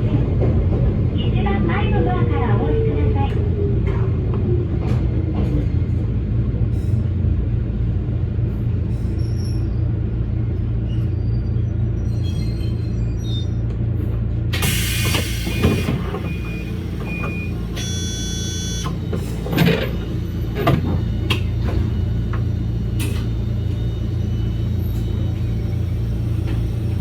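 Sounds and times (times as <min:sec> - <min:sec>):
electric train rumbling: 0:00.0 - 0:27.0
short beeps: 0:16.3 - 0:19.0.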